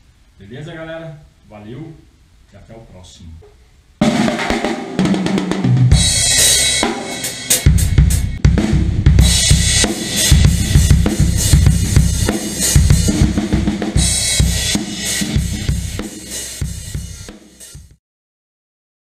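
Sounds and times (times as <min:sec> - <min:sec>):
cymbal crashes: 0:04.0 - 0:18.0
drum kit beat: 0:04.0 - 0:18.0.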